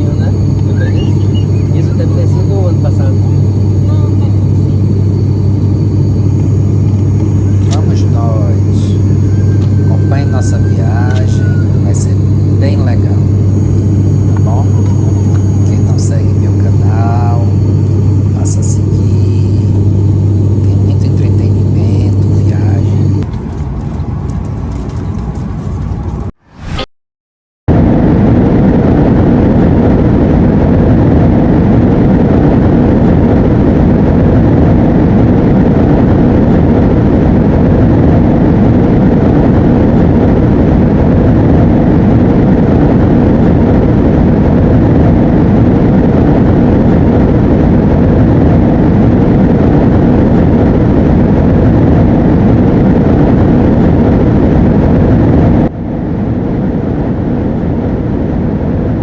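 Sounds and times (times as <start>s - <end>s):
airliner engine roar in cabin: 0.0s - 26.8s, 27.7s - 59.0s.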